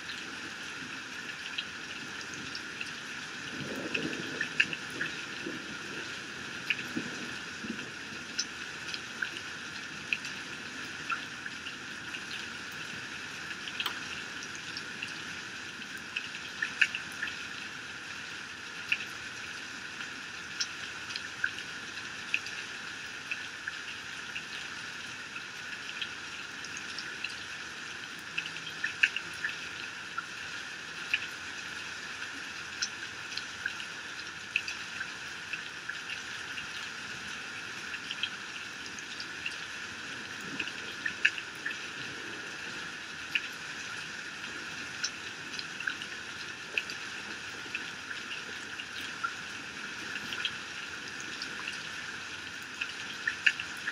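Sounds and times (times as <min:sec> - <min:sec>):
steady hiss of heavy rain: 0:00.0 - 0:53.9
water drops ticking and splashing: 0:00.0 - 0:53.9.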